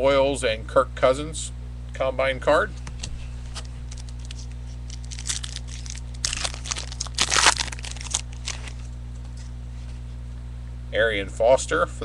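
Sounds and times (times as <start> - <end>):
low hum: 0.0 - 11.0
cards sliding and shuffling: 2.9 - 6.6
wrapper crinkling: 3.6 - 9.0.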